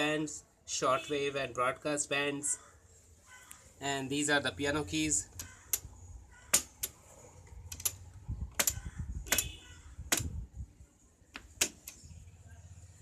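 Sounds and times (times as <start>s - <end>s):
radio push buttons clicking: 5.3s - 5.9s, 6.5s - 10.4s, 11.3s - 12.0s.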